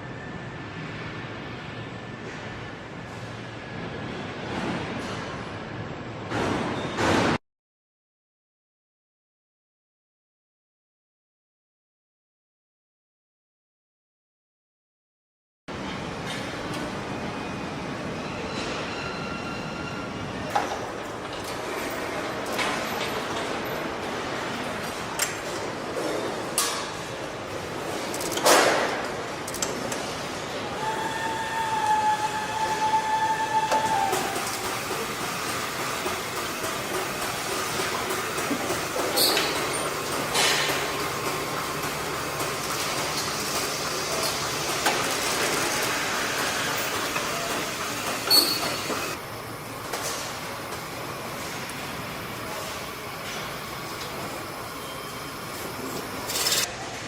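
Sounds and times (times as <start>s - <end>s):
assembly hall noise: 15.7s - 57.0s
machinery rumble and hiss: 15.7s - 57.0s
brief high squeal: 18.2s - 20.2s, 48.3s - 49.0s.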